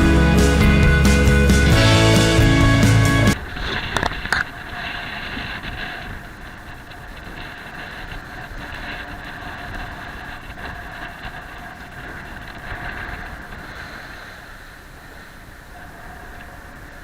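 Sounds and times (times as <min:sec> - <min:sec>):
engine running steadily: 0:00.0 - 0:03.4.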